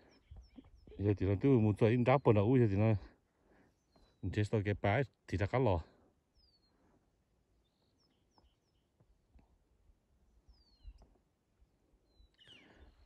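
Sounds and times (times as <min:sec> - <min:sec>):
faint bird chirps: 0:00.0 - 0:04.4, 0:06.3 - 0:09.6, 0:10.2 - 0:11.3, 0:11.9 - 0:13.0.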